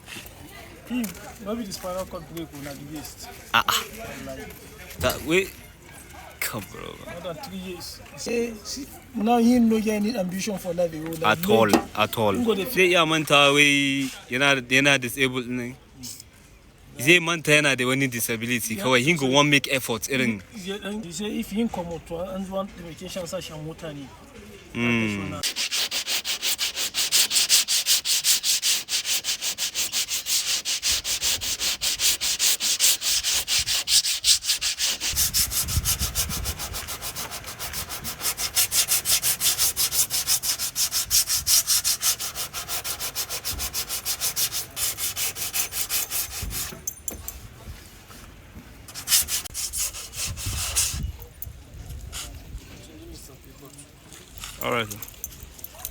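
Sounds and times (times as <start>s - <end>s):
hand sanding strokes: 25.4s - 46.8s, 48.9s - 51.0s.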